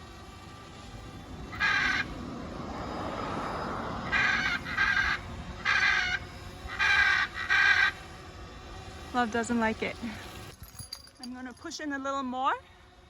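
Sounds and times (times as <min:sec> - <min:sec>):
macaw screaming: 0:01.5 - 0:02.2, 0:03.6 - 0:08.2.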